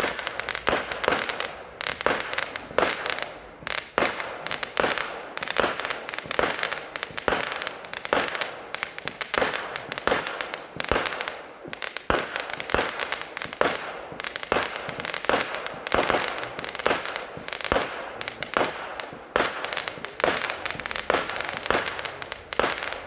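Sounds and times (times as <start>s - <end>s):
fireworks bangs with crackling: 0.0s - 23.0s.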